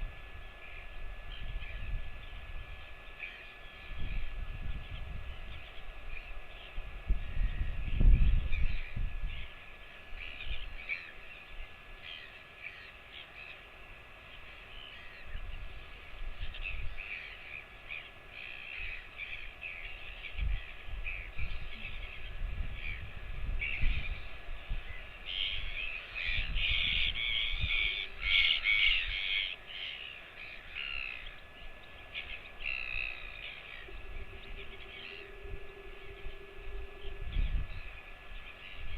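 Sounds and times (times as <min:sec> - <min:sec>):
birds harsh calls: 0:23.6 - 0:38.9.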